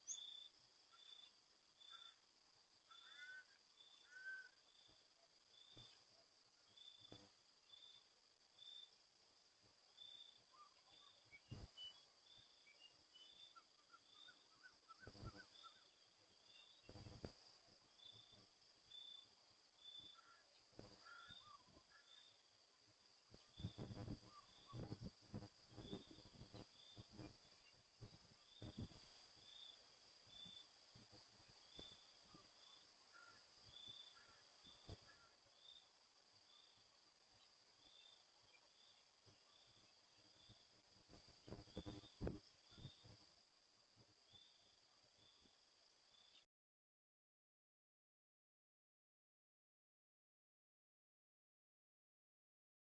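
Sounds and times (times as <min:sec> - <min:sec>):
short high insect chirps: 0:00.0 - 0:02.2, 0:23.2 - 0:35.9, 0:41.4 - 0:43.1
soft bird-like chirps: 0:00.0 - 0:02.2, 0:02.9 - 0:04.6, 0:10.1 - 0:17.3, 0:23.2 - 0:25.1
insects droning and chirping: 0:00.0 - 0:46.5.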